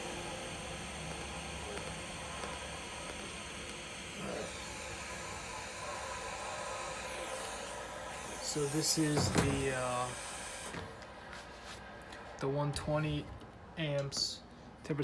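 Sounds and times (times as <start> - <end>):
welder hissing and whining: 0.0 - 11.1.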